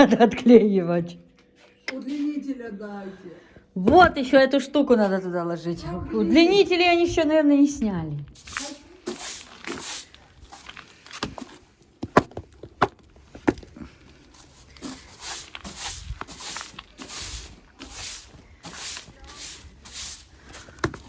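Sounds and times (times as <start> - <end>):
gritty scuffing footsteps: 8.3 - 21.0.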